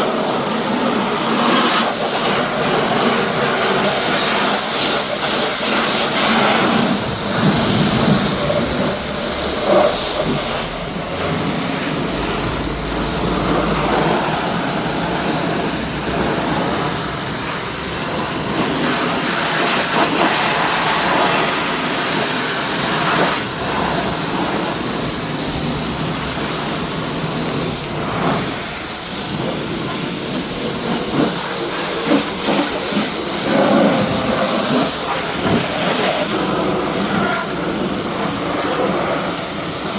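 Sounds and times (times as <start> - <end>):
pressure washer spraying: 0.0 - 39.9.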